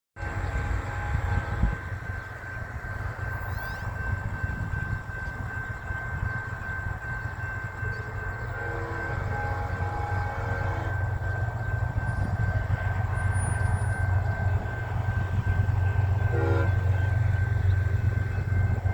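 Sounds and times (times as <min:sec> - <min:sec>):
faint train horn: 0:00.2 - 0:04.1, 0:07.8 - 0:18.9
freight train rumble: 0:00.2 - 0:18.9.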